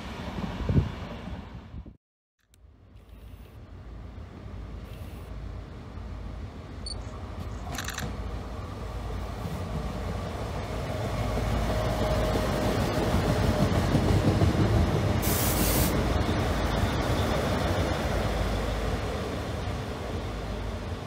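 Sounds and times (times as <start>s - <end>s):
train wheels on rails: 7.0s - 21.0s
burst of hiss: 15.2s - 16.0s.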